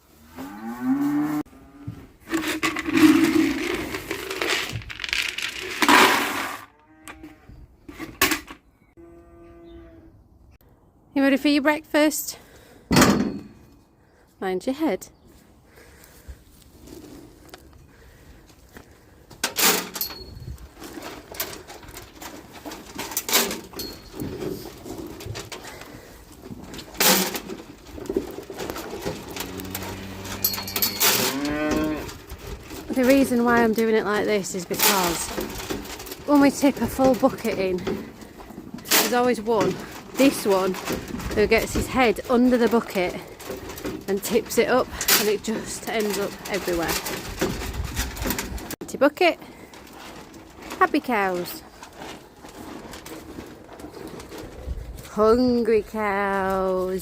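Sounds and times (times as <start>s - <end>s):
buckets clanking against troughs: 2.2s - 6.6s, 19.4s - 54.6s
cow mooing: 9.0s - 10.1s, 29.1s - 32.2s.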